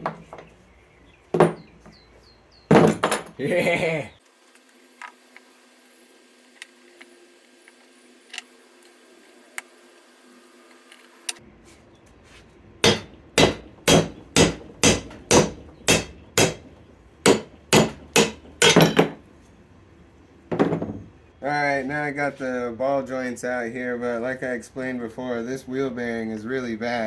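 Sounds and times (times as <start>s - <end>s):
hammer striking metal: 12.8s - 19.2s.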